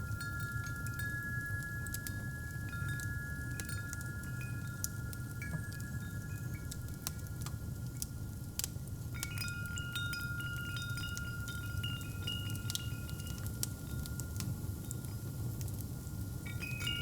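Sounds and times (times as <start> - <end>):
wind chimes ringing: 0.0 - 6.9, 9.2 - 14.3, 16.5 - 17.0
fireplace fire crackling: 0.1 - 17.0.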